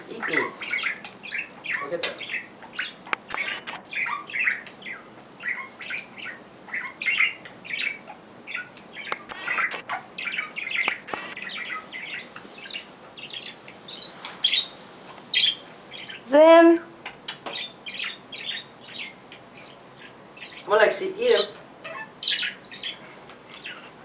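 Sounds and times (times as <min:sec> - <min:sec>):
small bird chirping sharply: 0:00.2 - 0:16.3, 0:17.1 - 0:23.9.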